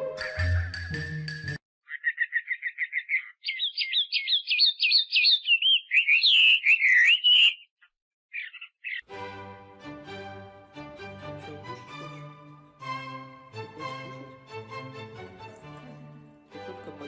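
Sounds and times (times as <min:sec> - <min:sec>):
background music: 0:00.0 - 0:01.6, 0:09.1 - 0:17.0
bird trilling and warbling: 0:01.8 - 0:09.1.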